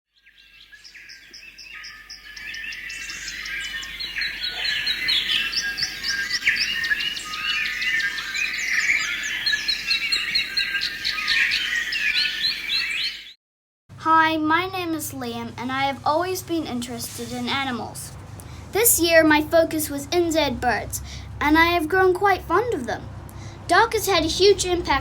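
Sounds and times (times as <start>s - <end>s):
songbirds singing: 0.1s - 13.4s.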